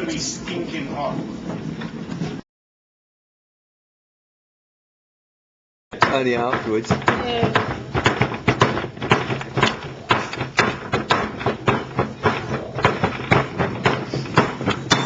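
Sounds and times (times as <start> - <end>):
sharp knocks of stones: 5.9 - 15.0.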